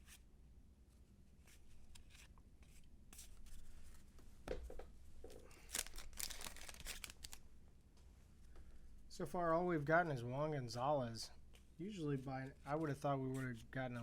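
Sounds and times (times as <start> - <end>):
cards flicking and rustling: 5.5 - 7.4.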